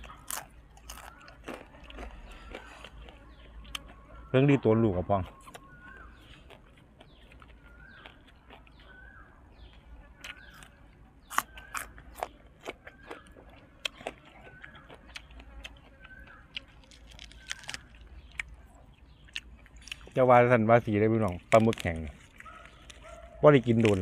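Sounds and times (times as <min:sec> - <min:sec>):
crisp food being handled: 0:00.0 - 0:04.0, 0:10.2 - 0:18.4, 0:21.2 - 0:24.0
bird chirping: 0:00.0 - 0:24.0
chewing and crunching crisp food: 0:00.0 - 0:24.0.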